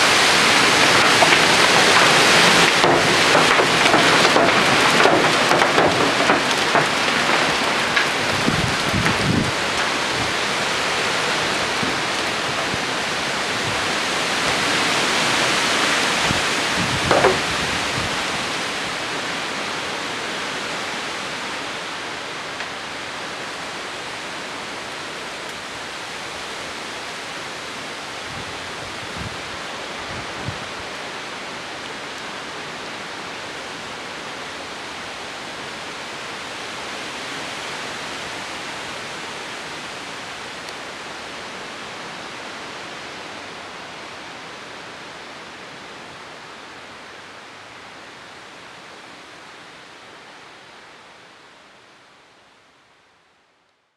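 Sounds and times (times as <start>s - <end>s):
wind gust rushing: 8.2s - 18.5s.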